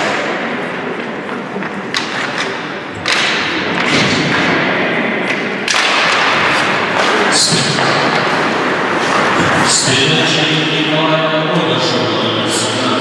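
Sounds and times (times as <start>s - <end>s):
crowd and rink noise: 0.0s - 13.0s
puck and sticks knocking: 1.3s - 9.6s.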